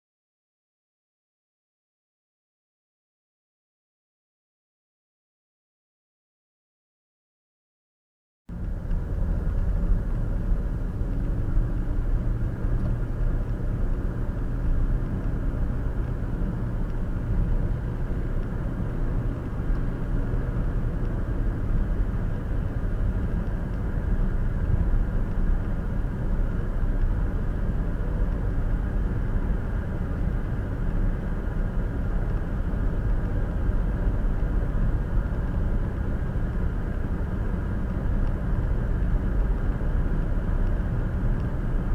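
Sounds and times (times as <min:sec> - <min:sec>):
car interior road and tyre rumble: 0:08.5 - 0:41.9.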